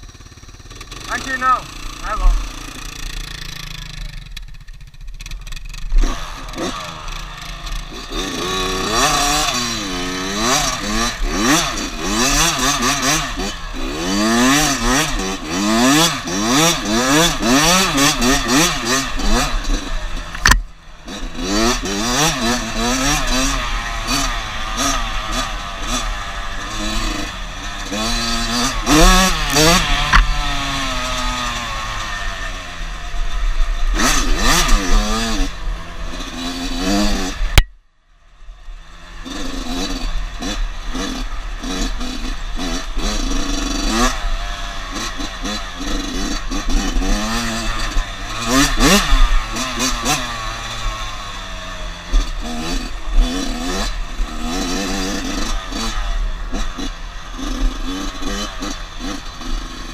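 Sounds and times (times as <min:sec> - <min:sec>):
dirt bike engine revving: 0:00.0 - 0:37.7, 0:38.7 - 0:59.9
clatter: 0:02.6 - 0:09.8, 0:10.6 - 0:30.4.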